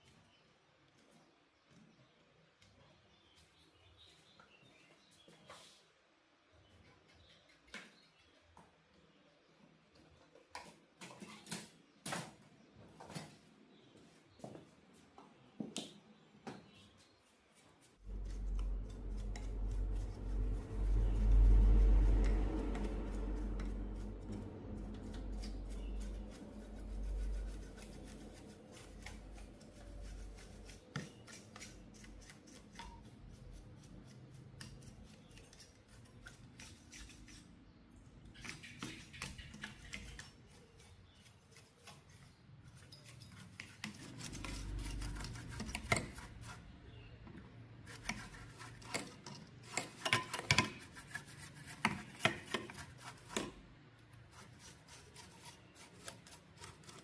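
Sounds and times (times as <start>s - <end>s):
tools rubbing and scraping: 17.3s - 37.7s, 38.3s - 47.0s, 47.7s - 57.0s.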